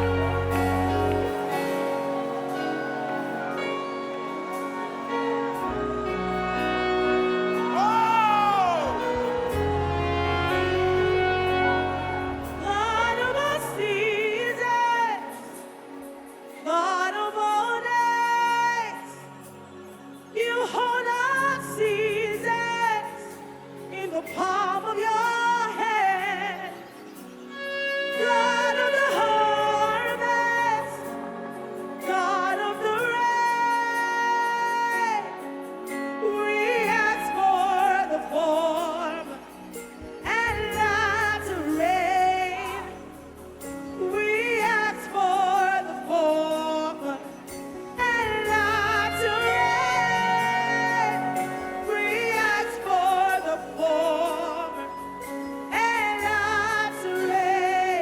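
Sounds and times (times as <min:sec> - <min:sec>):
bass: 0:00.0 - 0:01.6, 0:08.3 - 0:13.8, 0:39.3 - 0:45.1
keyboard chords: 0:00.0 - 0:58.0
woman singing: 0:00.0 - 0:58.0.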